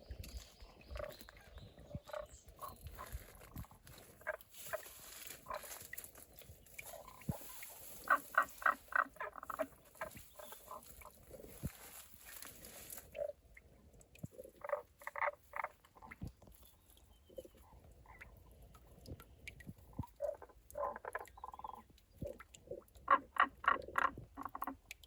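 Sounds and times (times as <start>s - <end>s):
frog calling: 4.2s - 5.8s, 6.8s - 11.6s, 14.4s - 16.2s, 23.1s - 24.8s.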